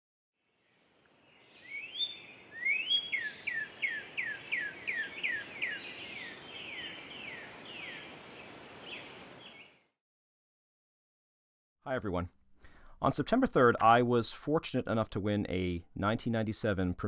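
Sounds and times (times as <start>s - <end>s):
songbird whistling: 1.5s - 8.0s.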